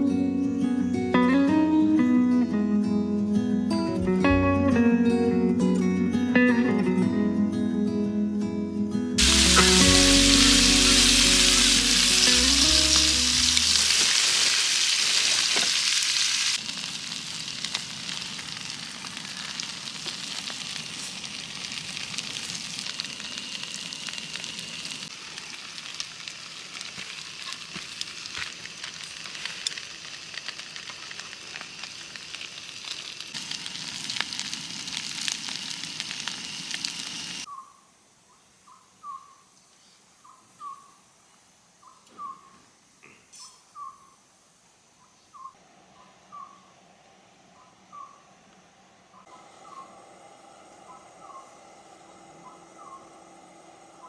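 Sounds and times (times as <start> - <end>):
sizzling hiss with crackles: 9.2 - 37.5, 48.5 - 54.0.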